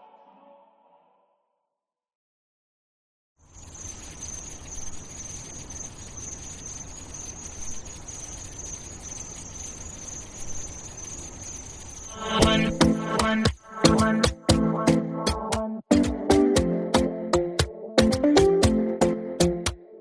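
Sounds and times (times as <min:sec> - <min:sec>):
insect chirring: 0:03.4 - 0:14.4.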